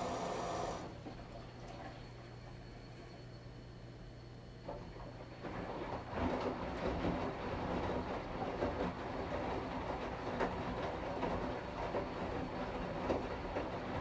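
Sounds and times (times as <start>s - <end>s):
washing machine motor humming: 0.0s - 2.0s, 4.7s - 14.0s
clothes and water churning: 5.3s - 14.0s.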